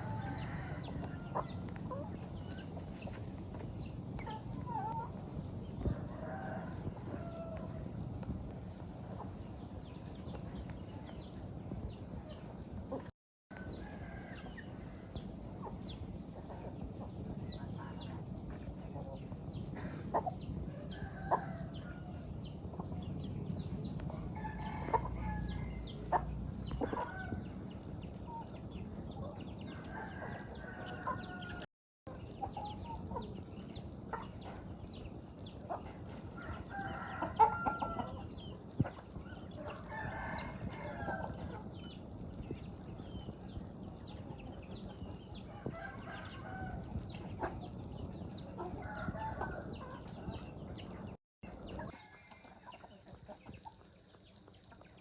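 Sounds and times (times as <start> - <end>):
rooster crowing: 0.0 - 1.6, 36.4 - 38.2, 39.6 - 41.4
chickens clucking: 0.0 - 55.0.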